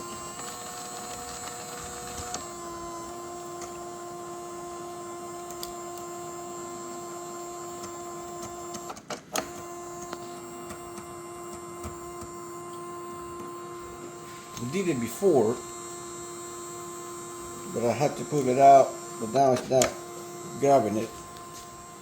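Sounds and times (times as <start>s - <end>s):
feeder motor whining: 0.0s - 22.0s
clicks: 19.3s - 20.1s.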